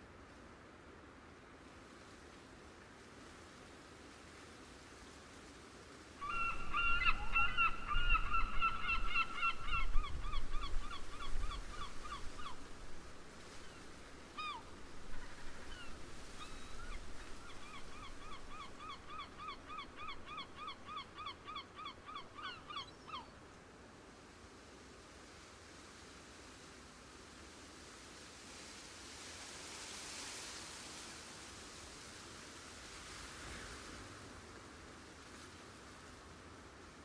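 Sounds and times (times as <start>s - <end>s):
bird calling in rapid notes: 6.2s - 12.5s.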